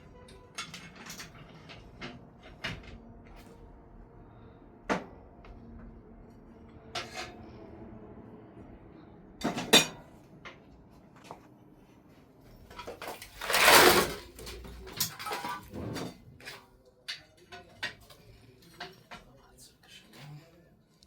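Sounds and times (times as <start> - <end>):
objects knocking and clattering: 0.0 - 3.6, 4.8 - 6.0, 9.4 - 11.4, 12.6 - 19.3.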